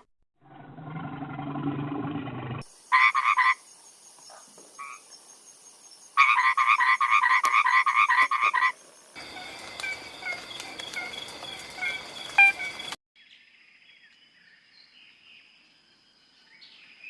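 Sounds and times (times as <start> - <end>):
frog croaking: 4.8 - 5.0.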